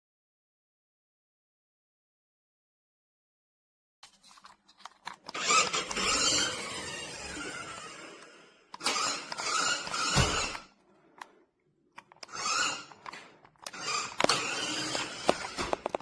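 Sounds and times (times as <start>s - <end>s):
toy truck electric motor running: 5.3s - 11.3s, 12.1s - 16.0s.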